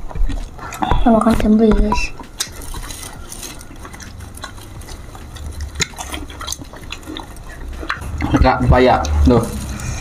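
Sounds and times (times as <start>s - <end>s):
person chewing fruit: 0.0s - 10.0s.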